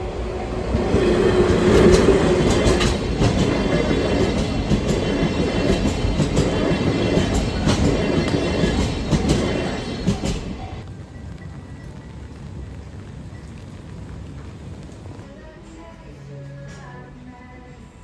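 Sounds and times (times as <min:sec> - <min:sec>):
wheels clattering over rail joints: 0:00.0 - 0:10.9
diesel train passing: 0:00.0 - 0:12.8.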